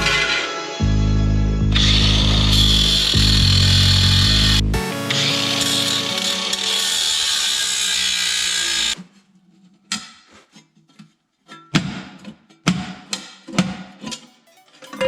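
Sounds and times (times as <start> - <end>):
power drill running: 5.3 - 9.0
plucked acoustic guitar notes: 14.2 - 15.0.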